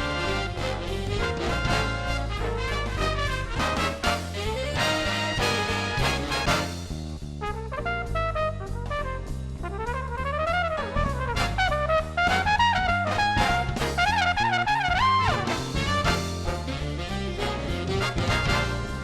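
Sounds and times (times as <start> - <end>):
upbeat brass-led tune: 0.0 - 19.0.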